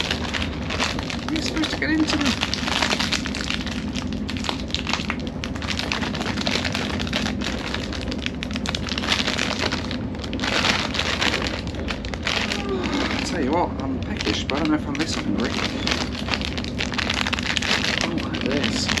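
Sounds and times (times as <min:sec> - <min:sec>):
plastic snack packet crinkling: 0:00.0 - 0:19.0
train coach rumbling and rattling: 0:00.0 - 0:19.0.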